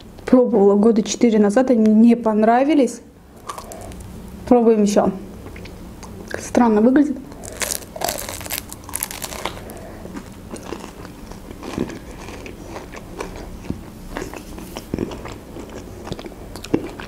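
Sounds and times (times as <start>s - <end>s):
crunching pastry crust: 3.4s - 4.1s, 7.3s - 17.0s.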